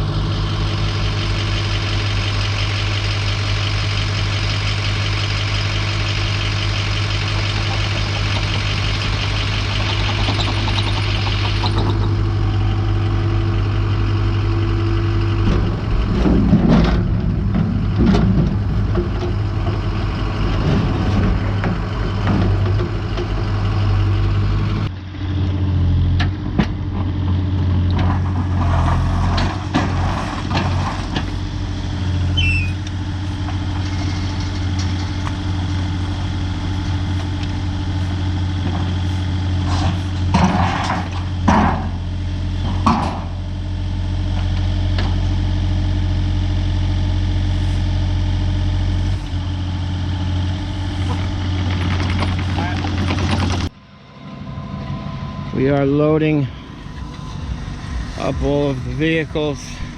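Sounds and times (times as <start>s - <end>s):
heavy engine running: 0.0s - 59.9s
knocks and clatter: 7.3s - 12.2s, 15.4s - 23.4s, 51.0s - 53.8s.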